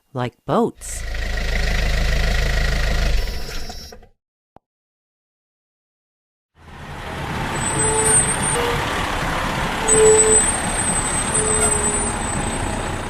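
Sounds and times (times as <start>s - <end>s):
truck engine rumbling: 0.8s - 4.0s, 6.6s - 13.0s
short high squeals: 7.6s - 8.9s, 9.8s - 12.4s.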